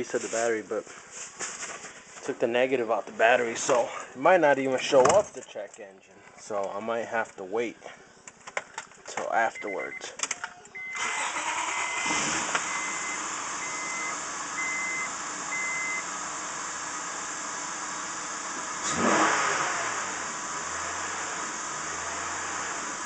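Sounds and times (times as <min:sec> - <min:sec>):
warning chime beeping: 0:09.4 - 0:11.1, 0:11.7 - 0:16.0
car engine starting and idling: 0:09.6 - 0:23.0.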